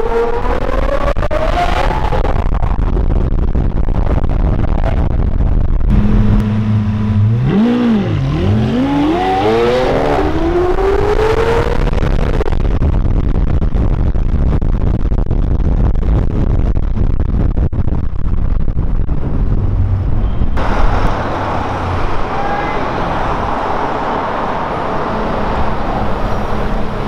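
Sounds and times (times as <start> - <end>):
car engine revving and accelerating: 5.9 - 12.0.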